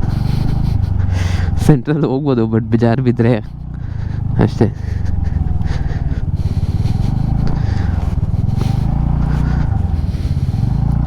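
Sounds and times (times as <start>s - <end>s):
motorcycle engine running: 0.0s - 11.0s
man talking: 1.6s - 3.5s, 4.4s - 4.9s.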